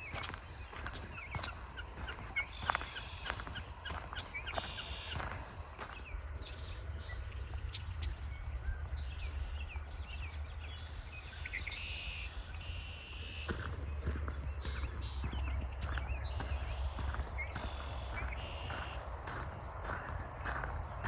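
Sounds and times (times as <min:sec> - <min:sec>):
footsteps: 0:00.0 - 0:06.1, 0:13.5 - 0:21.0
birds singing: 0:00.0 - 0:21.0
steady low rumble: 0:00.0 - 0:21.0.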